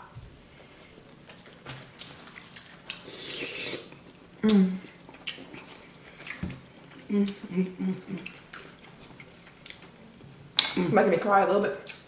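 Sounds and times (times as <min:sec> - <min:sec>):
chewing and wet mouth sounds: 0:00.1 - 0:10.6, 0:11.8 - 0:12.0
person humming: 0:04.4 - 0:04.9.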